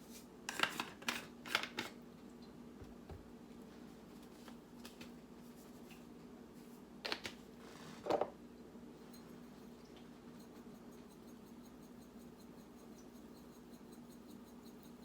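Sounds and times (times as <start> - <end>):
steady low hum: 8.3 - 15.0.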